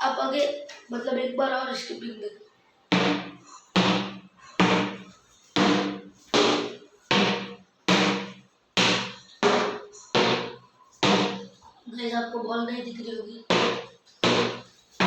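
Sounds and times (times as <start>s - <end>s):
ball knocking on cricket bat: 2.9s - 11.5s.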